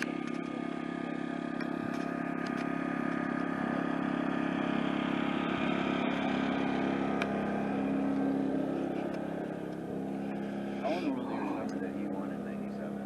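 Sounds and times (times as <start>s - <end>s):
off-road motorcycle engines droning: 0.0s - 13.0s.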